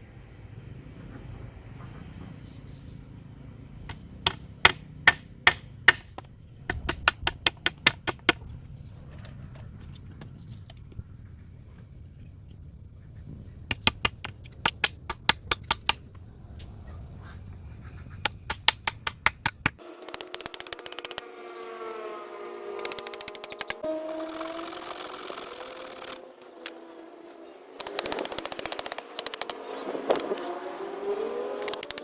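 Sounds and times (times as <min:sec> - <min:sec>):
birds chirping faintly: 0:00.0 - 0:32.0
tool striking wood: 0:03.9 - 0:08.4, 0:18.3 - 0:21.2, 0:27.8 - 0:30.4, 0:31.6 - 0:32.0.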